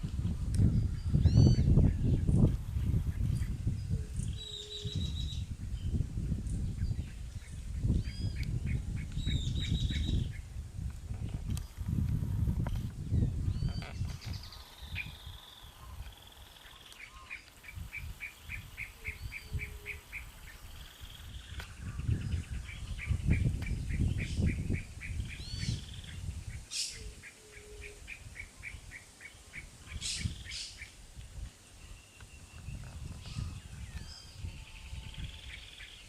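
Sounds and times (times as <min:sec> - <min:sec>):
birds calling: 0:12.6 - 0:31.0.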